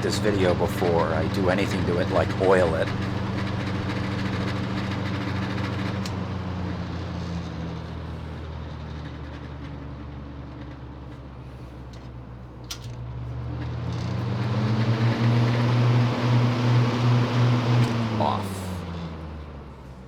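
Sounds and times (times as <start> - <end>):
box fan running: 0.0 - 20.0.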